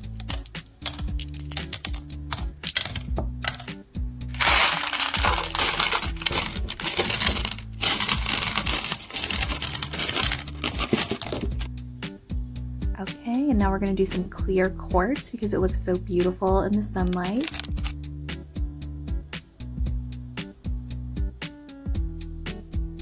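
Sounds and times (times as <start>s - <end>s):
stones clinking in ceramic bowl: 0.0s - 3.7s, 4.4s - 11.7s
background music: 0.0s - 23.0s.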